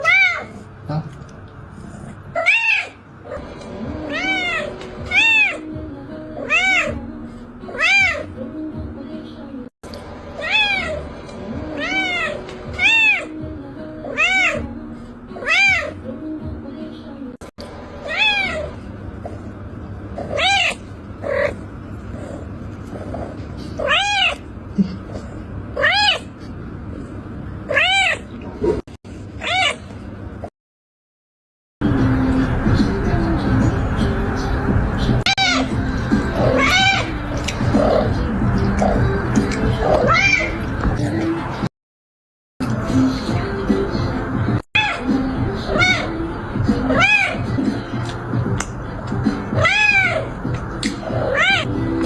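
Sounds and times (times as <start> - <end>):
cat meowing: 0.0 - 0.6, 2.4 - 3.0, 4.1 - 5.6, 6.4 - 7.0, 7.7 - 8.3, 10.4 - 11.0, 11.8 - 13.3, 14.1 - 14.6, 15.4 - 16.0, 18.0 - 18.8, 20.3 - 21.6, 23.8 - 24.4, 25.8 - 26.3, 27.7 - 28.3, 29.4 - 29.8, 35.2 - 35.8, 36.4 - 37.1, 40.0 - 40.6, 45.7 - 46.2, 46.9 - 47.5, 49.5 - 50.3, 51.2 - 51.7.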